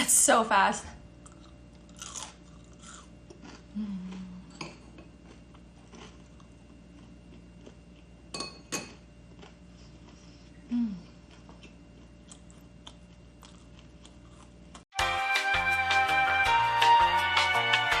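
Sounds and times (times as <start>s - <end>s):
crunchy fried chicken chewing: 1.2s - 4.3s, 5.2s - 8.1s, 11.3s - 14.9s.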